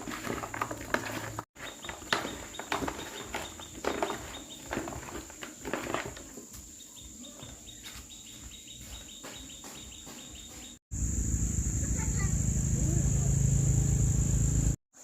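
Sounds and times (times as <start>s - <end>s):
high-pitched insect drone: 11.0s - 14.8s.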